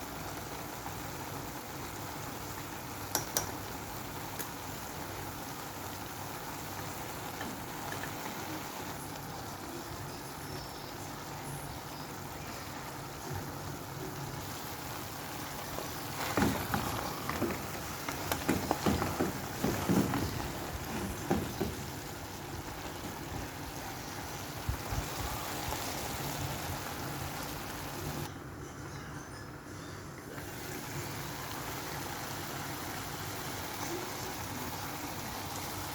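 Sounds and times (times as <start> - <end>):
food sizzling in a pan: 0.0 - 28.3, 30.2 - 35.9
utensil knocking against pan: 18.1 - 21.9.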